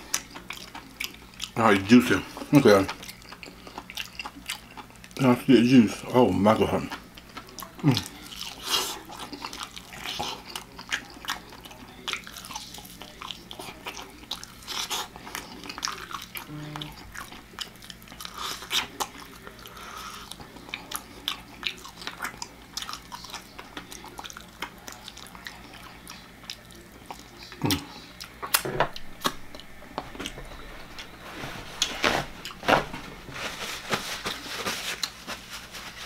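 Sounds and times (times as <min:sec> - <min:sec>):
chewing and biting chicken: 0:00.0 - 0:05.3, 0:06.8 - 0:30.7
paper napkin rustling: 0:30.0 - 0:36.0.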